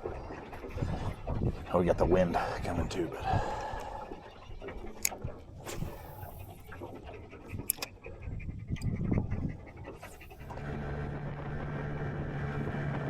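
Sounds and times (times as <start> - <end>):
small boat motor humming: 3.3 - 13.0.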